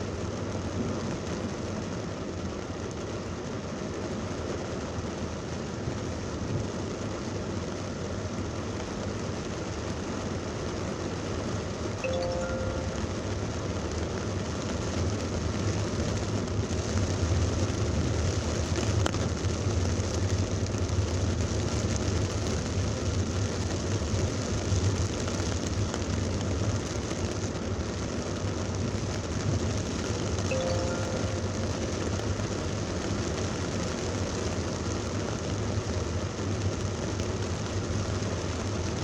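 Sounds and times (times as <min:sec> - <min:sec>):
heavy rain pouring: 0:00.0 - 0:39.0.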